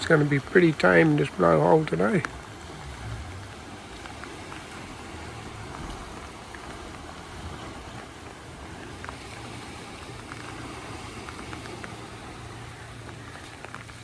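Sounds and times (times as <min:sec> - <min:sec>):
light rain pattering: 0:00.0 - 0:14.0
sea swell rushing: 0:00.0 - 0:14.0
wind: 0:00.0 - 0:14.0.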